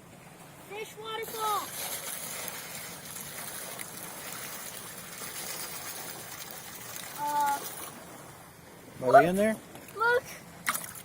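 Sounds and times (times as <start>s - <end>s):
water pouring and splashing: 1.2s - 8.4s, 9.8s - 11.0s.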